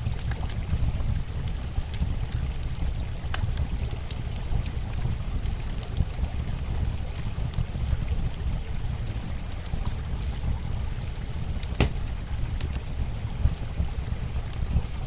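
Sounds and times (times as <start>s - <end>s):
campfire crackling: 0.0s - 15.0s
running water rushing: 8.7s - 15.0s
sharp pops of fire: 11.7s - 12.8s.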